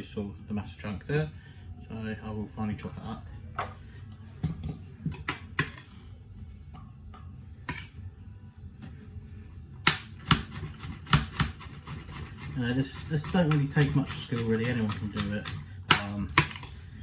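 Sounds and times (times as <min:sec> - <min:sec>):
knife chopping on glass board: 0:09.8 - 0:16.7.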